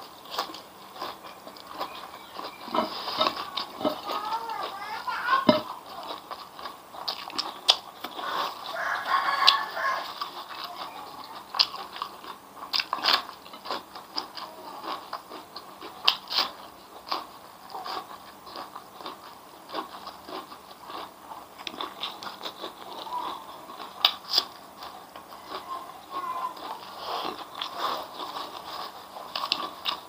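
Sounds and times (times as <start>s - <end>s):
person chewing crunchy food: 0.0s - 30.0s.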